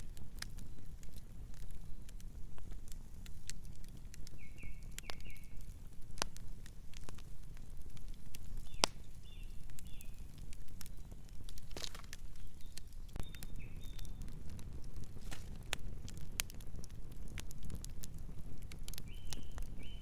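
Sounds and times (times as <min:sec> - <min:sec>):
fire popping: 0:00.0 - 0:20.0
wood fire crackling: 0:00.0 - 0:20.0
bird chirping: 0:04.3 - 0:05.6, 0:08.6 - 0:10.3, 0:12.3 - 0:14.2, 0:19.0 - 0:20.0.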